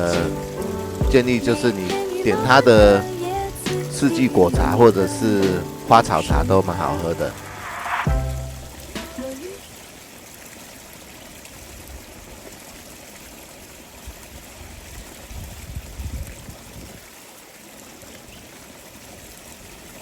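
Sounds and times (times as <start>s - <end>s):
flowing water rushing: 0.0s - 20.0s
low rumbles: 2.8s - 9.3s.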